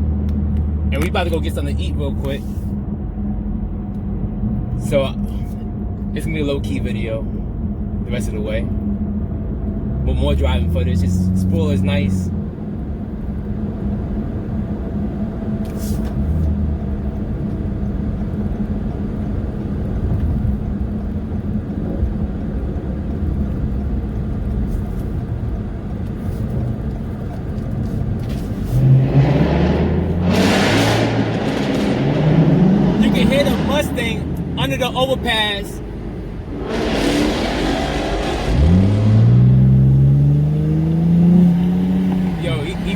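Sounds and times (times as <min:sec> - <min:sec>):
car engine droning: 0:00.0 - 0:42.9
road noise: 0:00.0 - 0:42.9
engine revving: 0:28.6 - 0:42.9.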